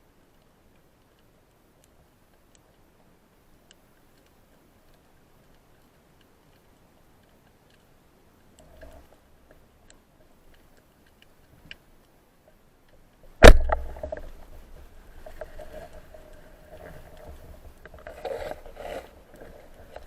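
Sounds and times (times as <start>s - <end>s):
faint ticks: 0.0s - 20.0s
loud sharp knock: 13.4s - 13.8s.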